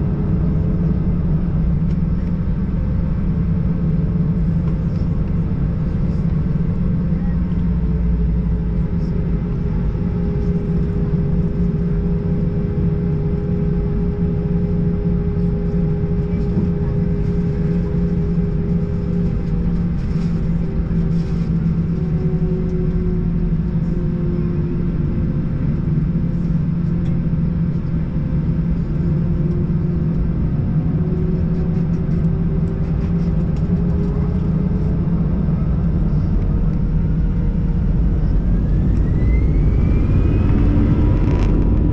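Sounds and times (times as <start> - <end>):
airplane cabin rumble: 0.0 - 41.9
whining tone: 35.9 - 41.9.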